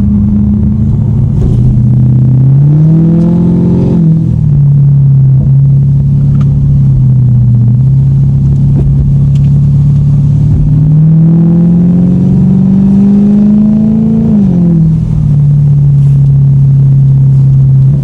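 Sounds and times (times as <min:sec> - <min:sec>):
car engine under load: 0:00.0 - 0:18.0.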